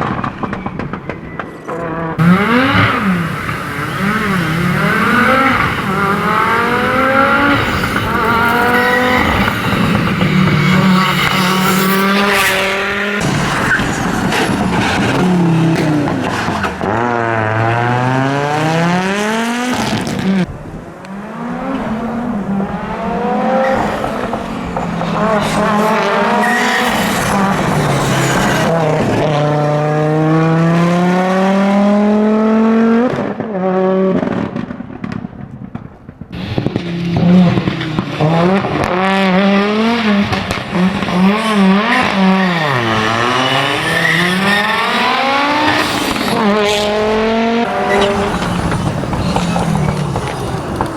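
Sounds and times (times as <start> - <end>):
rally car engine revving: 1.8 - 34.5, 36.4 - 50.9.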